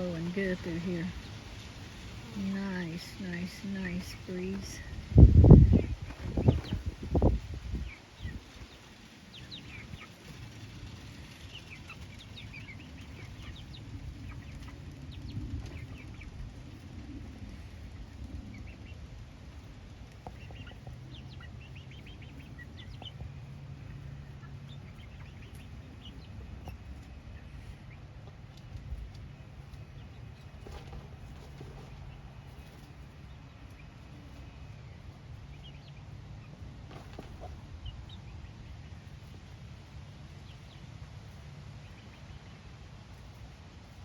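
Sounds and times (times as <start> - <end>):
wind rumble on microphone: 0.0 - 27.9
chickens clucking: 0.0 - 44.0.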